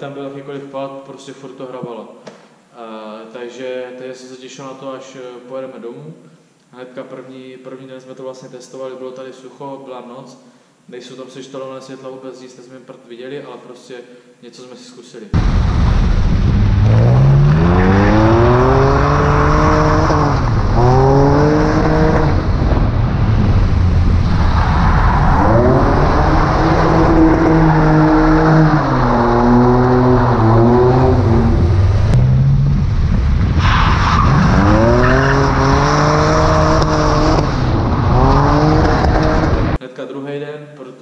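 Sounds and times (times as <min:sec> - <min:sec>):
car engine revving: 0:15.4 - 0:39.8.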